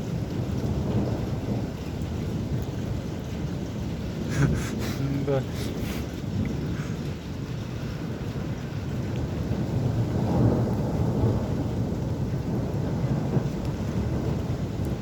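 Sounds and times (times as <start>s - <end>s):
rain hissing: 0.0s - 15.0s
rolling thunder: 0.0s - 15.0s.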